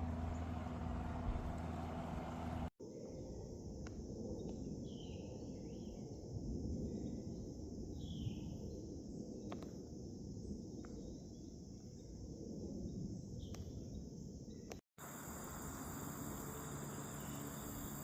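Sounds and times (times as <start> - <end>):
low outdoor rumble: 0.0 - 2.7
high-pitched insect drone: 15.0 - 18.0.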